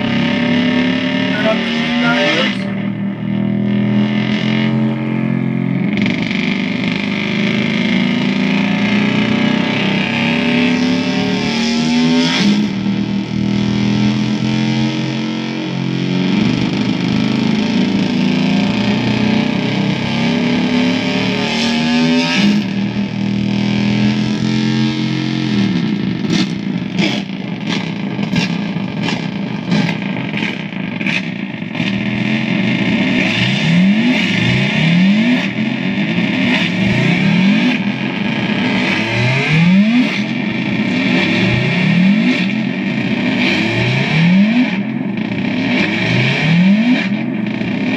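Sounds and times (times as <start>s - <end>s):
effects pedals feedback drone: 0.0s - 47.9s
stuttering electronic crackle: 1.2s - 3.0s.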